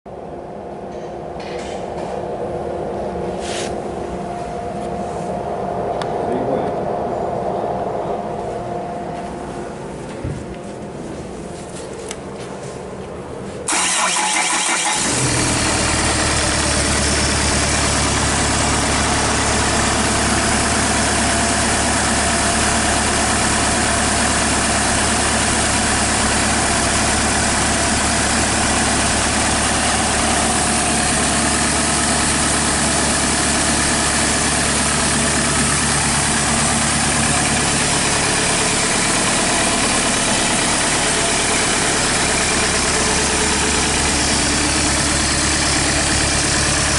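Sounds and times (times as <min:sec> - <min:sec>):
diesel engine idling: 0:13.6 - 0:46.9.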